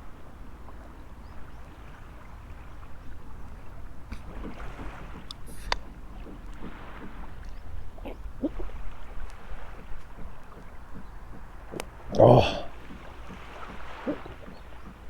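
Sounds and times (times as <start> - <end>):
surf washing: 0.0 - 15.0
wind rumbling on microphone: 0.0 - 15.0
sharp clicks: 9.2 - 12.0.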